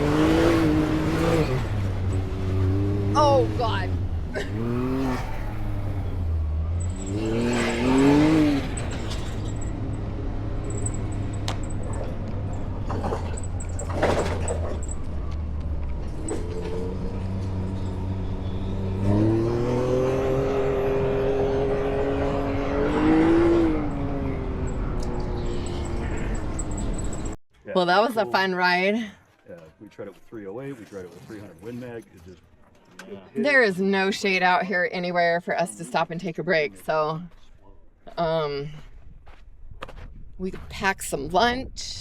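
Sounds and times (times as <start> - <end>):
off-road vehicle engine revving: 0.0 - 27.4.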